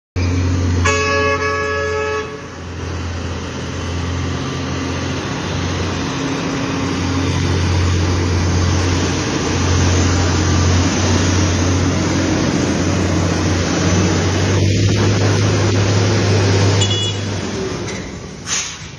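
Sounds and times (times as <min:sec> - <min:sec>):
road noise: 0:00.2 - 0:18.9
truck diesel engine droning: 0:00.2 - 0:18.9
truck horn: 0:00.3 - 0:02.9, 0:13.9 - 0:17.6.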